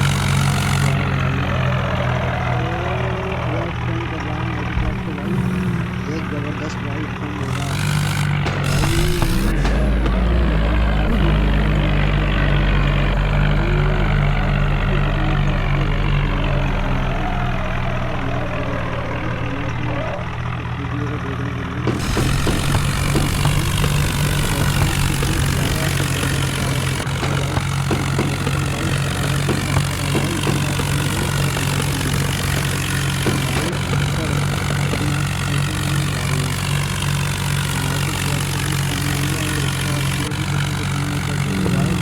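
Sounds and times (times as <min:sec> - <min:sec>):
vehicle engine running: 0:00.0 - 0:42.0
short knocks: 0:07.4 - 0:12.6, 0:21.8 - 0:37.7.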